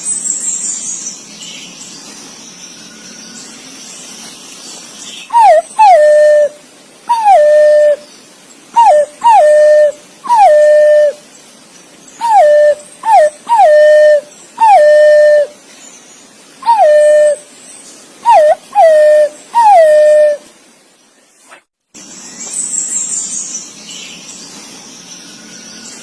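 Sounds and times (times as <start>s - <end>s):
pigeon whistled calls: 5.3s - 8.0s, 8.8s - 11.2s, 12.2s - 15.5s, 16.6s - 17.4s, 18.2s - 20.4s.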